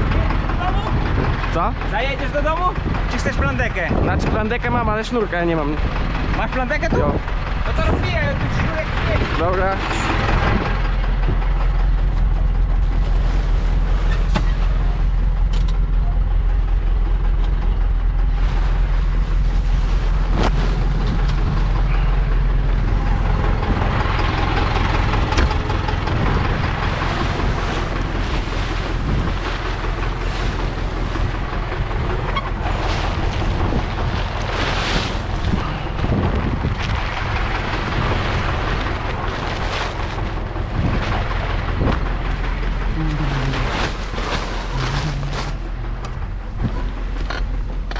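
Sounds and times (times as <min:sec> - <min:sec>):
tractor engine running: 0:00.0 - 0:47.9
wind on microphone: 0:18.4 - 0:39.7, 0:40.4 - 0:47.0.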